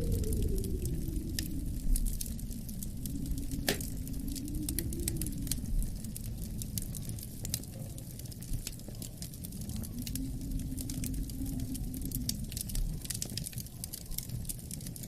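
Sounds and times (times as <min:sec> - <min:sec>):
low rumble of wind: 0:00.0 - 0:15.0
wood fire crackling and popping: 0:00.0 - 0:15.0.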